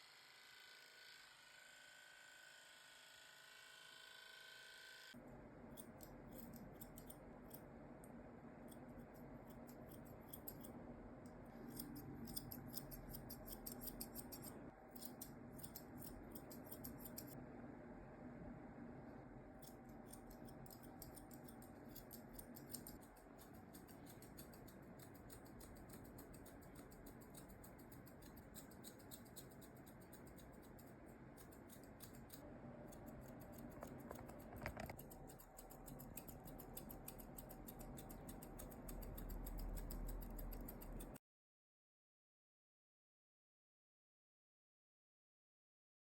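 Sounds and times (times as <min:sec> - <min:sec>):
grooming scissors snipping: 0:05.7 - 0:07.7, 0:08.6 - 0:17.4, 0:19.6 - 0:41.2.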